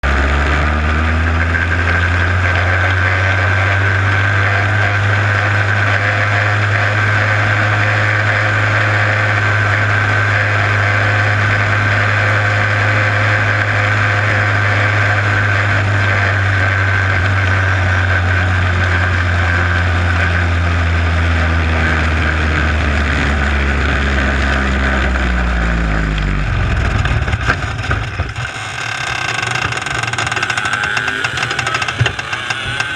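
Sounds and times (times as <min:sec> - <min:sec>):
starter cranking engine: 0:24.9 - 0:32.9
irregular engine knocks: 0:26.6 - 0:32.9.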